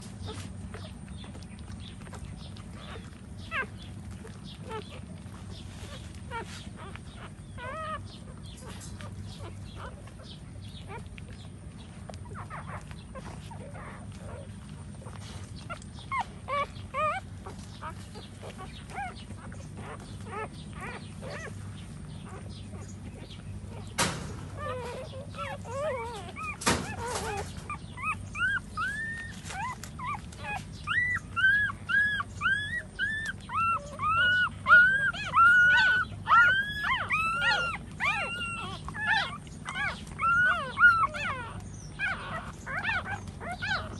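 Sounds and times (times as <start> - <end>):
puppies squeaking and whimpering: 0.0 - 43.9
steady low hum: 0.0 - 43.9.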